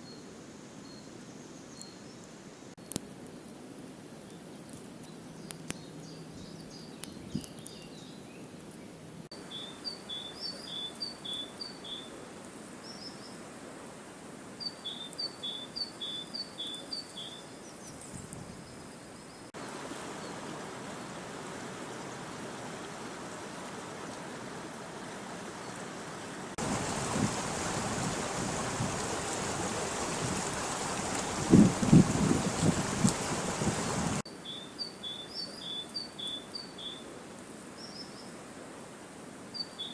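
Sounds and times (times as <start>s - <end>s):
songbird singing: 0.0s - 3.0s, 4.2s - 13.5s, 14.6s - 21.1s, 25.0s - 37.1s, 37.7s - 38.4s, 39.5s - 39.9s
river water rushing: 19.6s - 34.3s.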